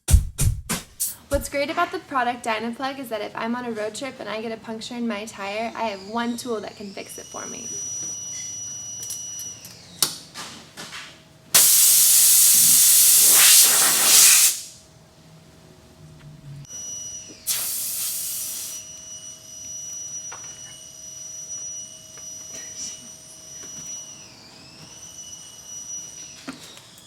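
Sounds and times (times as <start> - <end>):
air hissing from tire: 11.6 - 14.8, 17.5 - 18.9.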